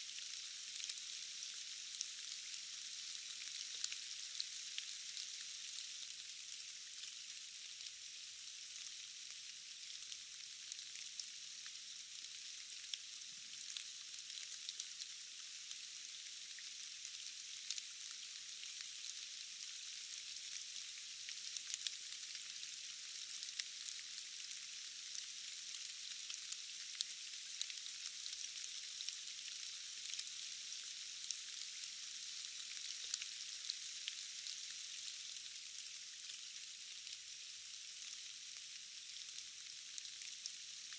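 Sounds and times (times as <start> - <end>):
rain falling in forest: 0.0 - 40.9.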